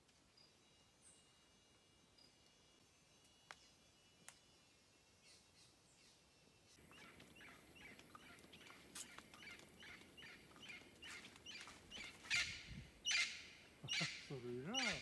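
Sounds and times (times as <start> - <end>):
bird calling: 5.2 - 15.0.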